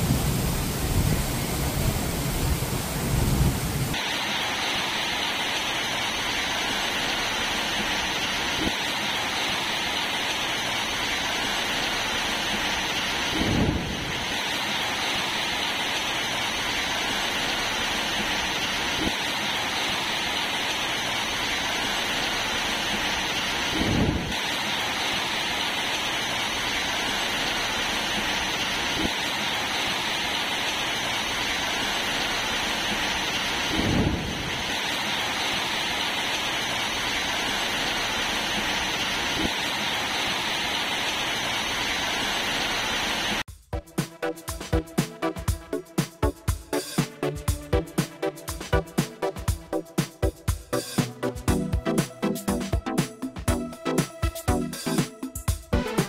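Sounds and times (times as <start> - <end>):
heavy rain pouring: 0.0 - 43.5, 44.2 - 55.1, 55.7 - 56.0
low rumble: 33.7 - 34.7.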